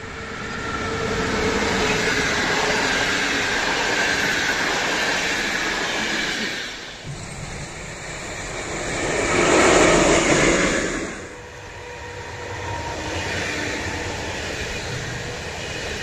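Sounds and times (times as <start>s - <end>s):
train passing at speed: 0.0s - 16.0s.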